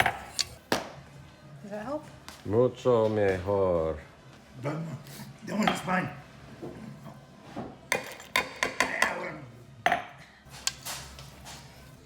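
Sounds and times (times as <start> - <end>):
utensils clinking against dishes: 0.0 - 0.6, 7.9 - 11.6.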